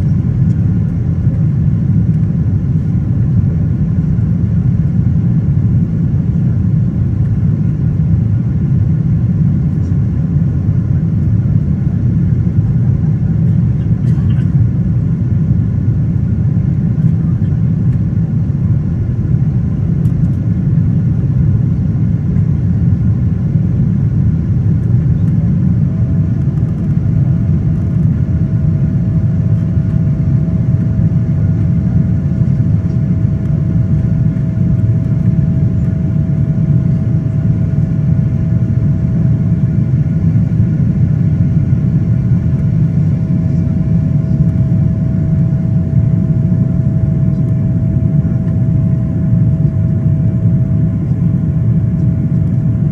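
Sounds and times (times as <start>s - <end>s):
jet engine cabin rumble: 0.0s - 52.9s
faint engine tone: 41.6s - 52.9s.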